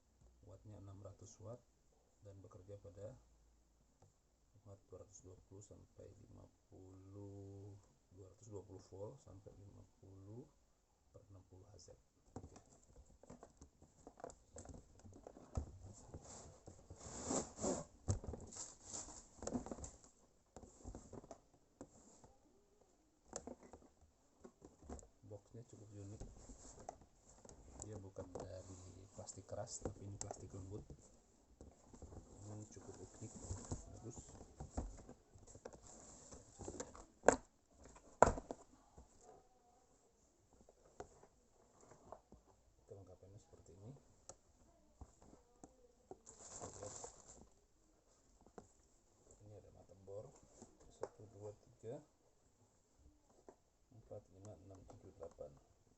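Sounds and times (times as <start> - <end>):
plastic case rustling and knocking: 12.2 - 22.2, 23.3 - 25.2, 25.8 - 39.3
packaging rustling: 46.2 - 47.5.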